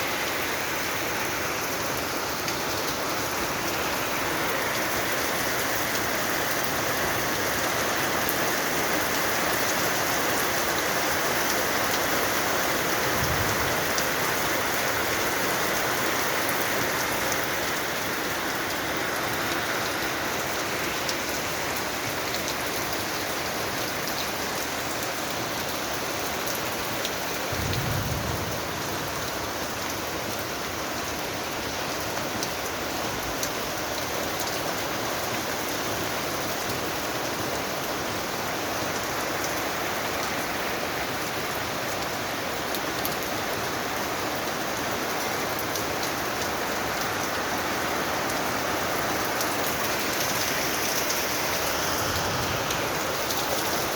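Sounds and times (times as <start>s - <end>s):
steady rain falling: 0.0s - 53.9s
low thump: 27.6s - 29.0s.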